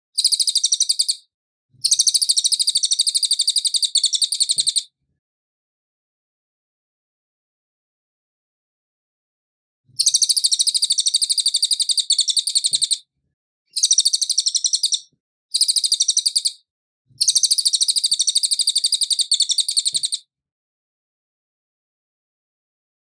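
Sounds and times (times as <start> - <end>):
bird high fast trill: 0.2 - 1.1, 10.0 - 13.0, 13.8 - 16.6, 17.2 - 20.2.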